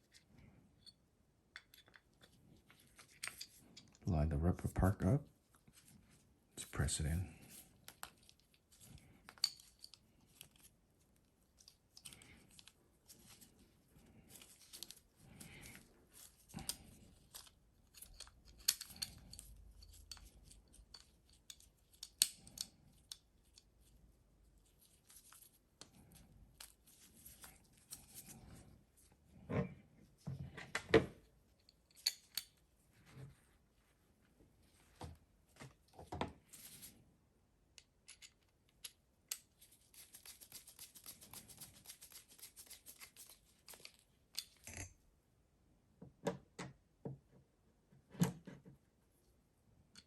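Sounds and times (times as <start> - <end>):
metal parts clicking and scraping: 1.6 - 4.0, 7.5 - 10.7, 15.6 - 23.7, 31.6 - 32.6, 37.8 - 40.4, 42.9 - 45.0.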